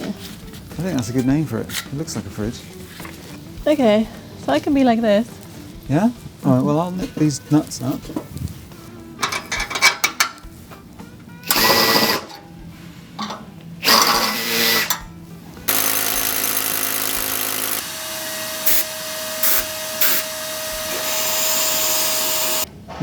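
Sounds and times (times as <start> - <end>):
loud mechanical noise: 11.4 - 12.4, 13.2 - 15.0, 15.6 - 22.7
power drill whirring: 11.4 - 12.4, 13.8 - 15.0, 15.7 - 22.7.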